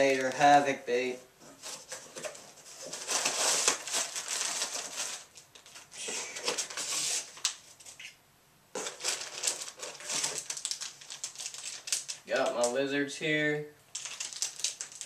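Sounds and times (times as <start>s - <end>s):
plastic packaging crinkling: 0.0s - 0.7s, 1.9s - 8.1s, 8.8s - 12.8s, 13.9s - 15.0s.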